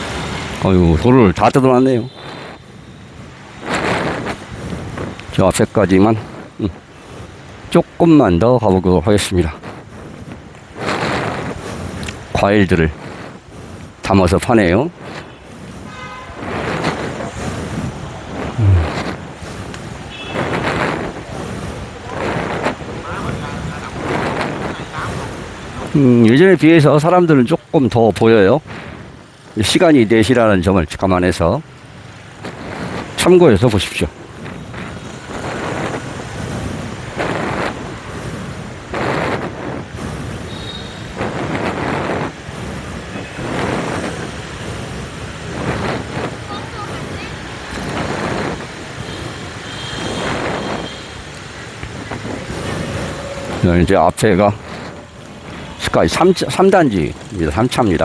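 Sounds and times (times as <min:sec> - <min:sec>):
motorbikes passing: 0:00.0 - 0:58.0
wind buffeting microphone: 0:00.0 - 0:58.0.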